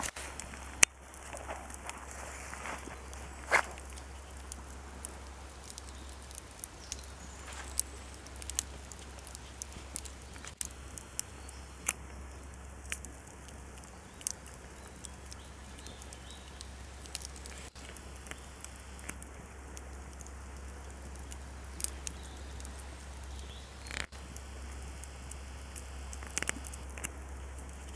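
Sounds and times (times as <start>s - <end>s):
campfire crackling and popping: 0.0s - 27.9s.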